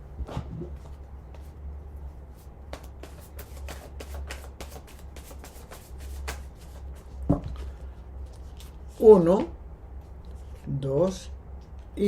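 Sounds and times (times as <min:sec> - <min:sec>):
steady low hum: 0:00.0 - 0:12.0
cards being shuffled: 0:02.7 - 0:07.6.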